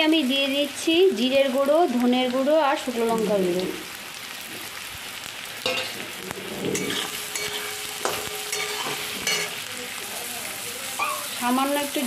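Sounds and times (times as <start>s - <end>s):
vegetables sizzling in hot oil: 0.0s - 12.0s
spatula scraping metal pan: 5.7s - 9.6s.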